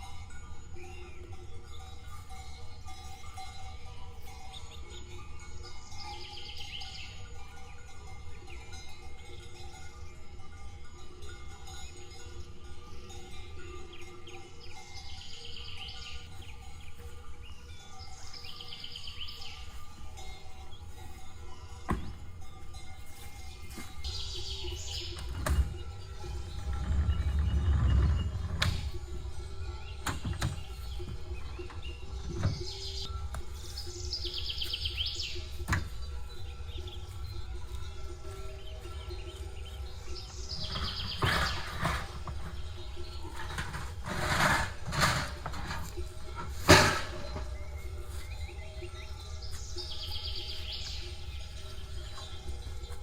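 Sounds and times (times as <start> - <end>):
songbird singing trilled phrases: 5.8 - 7.2, 13.0 - 21.0, 23.5 - 43.9, 45.6 - 53.0
low forest rumble: 17.5 - 53.0.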